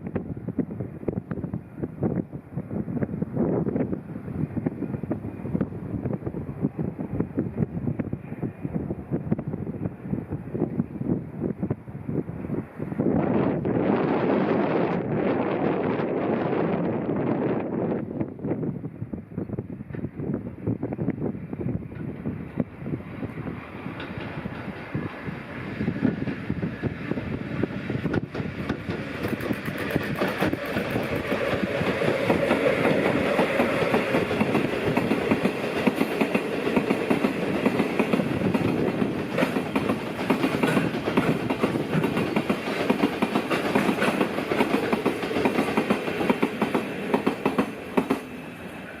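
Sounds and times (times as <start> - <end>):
train wheels clattering over rails: 21.8 - 48.5.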